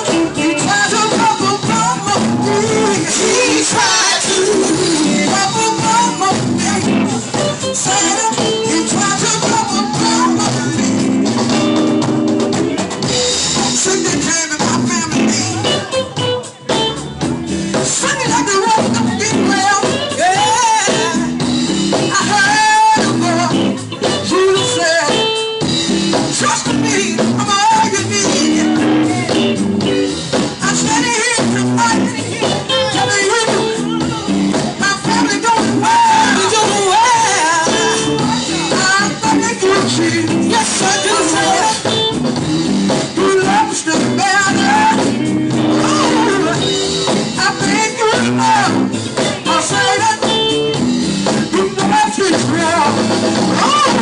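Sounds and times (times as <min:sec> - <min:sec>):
gospel music with singing: 0:00.0 - 0:54.0.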